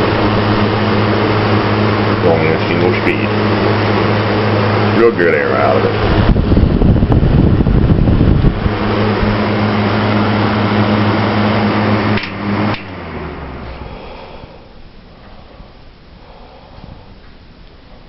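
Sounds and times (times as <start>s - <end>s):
box fan motor humming: 0.0s - 18.0s
fan switch click: 12.1s - 13.1s.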